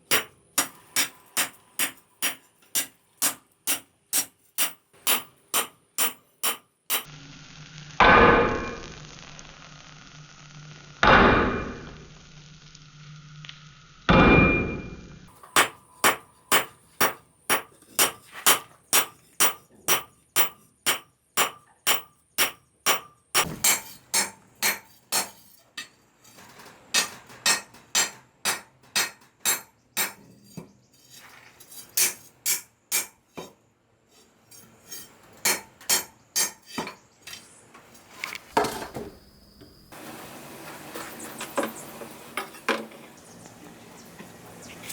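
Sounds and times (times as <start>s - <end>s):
hammer striking steel on anvil: 0.0s - 7.1s, 14.1s - 26.0s, 26.9s - 30.3s, 32.0s - 33.5s, 34.9s - 37.0s.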